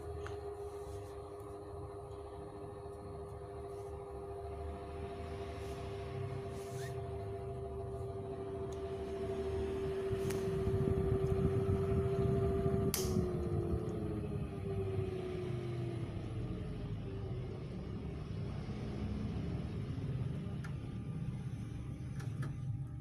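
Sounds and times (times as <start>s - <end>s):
box fan whining: 0.0s - 23.0s
fan switch click: 12.8s - 13.4s.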